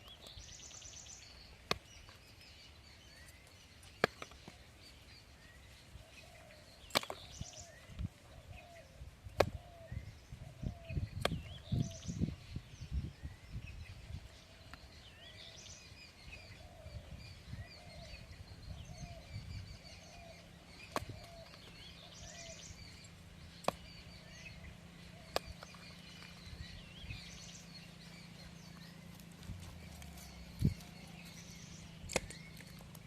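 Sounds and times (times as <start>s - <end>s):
lower bird call: 0.0s - 33.0s
small birds chirping: 0.0s - 33.0s
sharp clicks: 32.0s - 33.0s.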